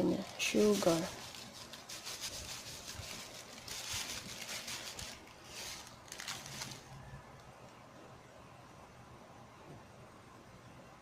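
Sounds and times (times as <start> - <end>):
scraping and rustling at cooking pot: 0.0 - 6.8.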